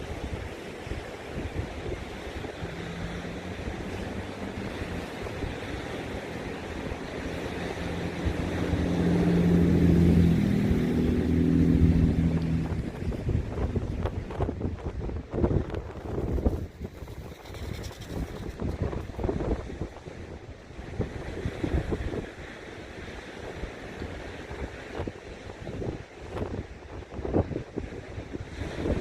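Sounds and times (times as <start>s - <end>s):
ocean surf: 0.0s - 29.0s
wind buffeting microphone: 0.0s - 29.0s
engine droning: 0.1s - 19.4s.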